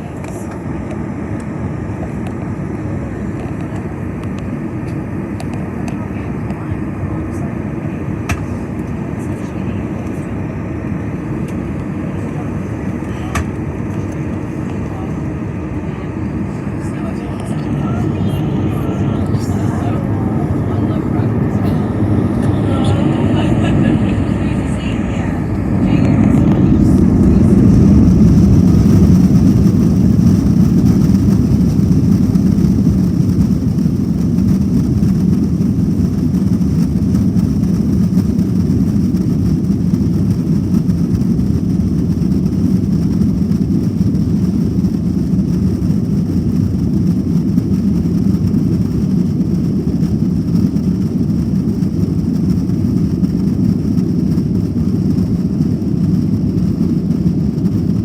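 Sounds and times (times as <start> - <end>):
jet engines roaring: 0.0 - 58.0
faint high whine: 6.2 - 31.1.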